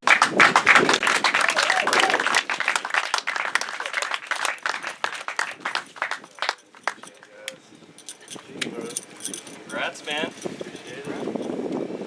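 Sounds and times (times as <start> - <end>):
crowd clapping: 0.0 - 7.3.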